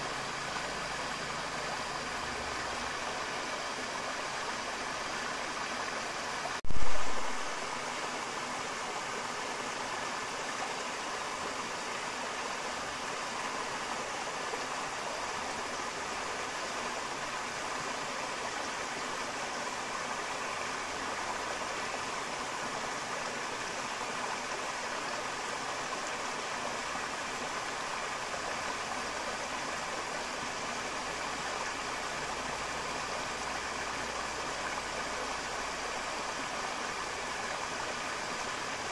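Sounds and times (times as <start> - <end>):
river flowing: 0.0 - 38.9
loud sharp thump: 6.6 - 7.5.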